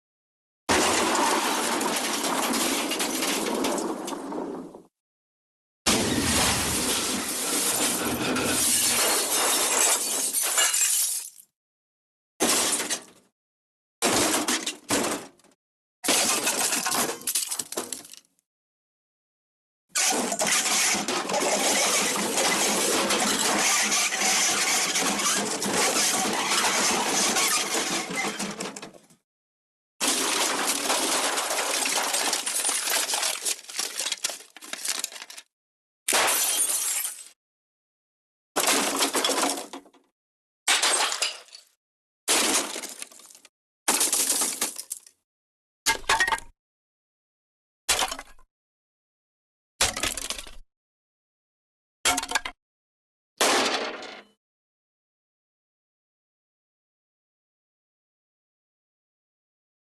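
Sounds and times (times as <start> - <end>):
cartoon crash with breaking debris: 0.7 - 4.6, 5.9 - 10.7, 30.0 - 34.5, 36.1 - 37.3, 53.4 - 54.2
clatter of objects breaking: 0.7 - 4.8, 16.0 - 18.4, 20.0 - 29.2, 30.0 - 35.5, 38.6 - 40.1, 40.7 - 45.2, 49.8 - 50.6, 53.4 - 54.4.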